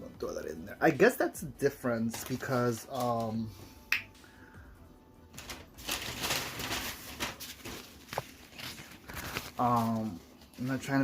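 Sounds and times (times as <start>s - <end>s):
paper wrapper crinkling: 5.3s - 11.0s.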